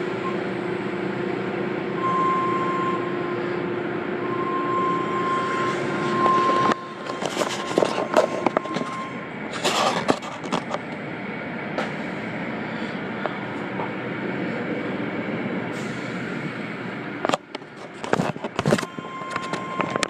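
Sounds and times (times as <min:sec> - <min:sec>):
scattered knocks and clicks: 0:06.5 - 0:09.0, 0:09.6 - 0:11.0.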